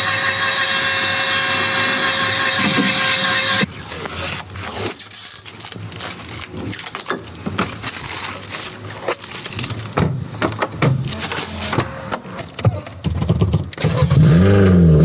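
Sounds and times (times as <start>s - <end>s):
crackling and scraping on metal: 0.0s - 10.4s.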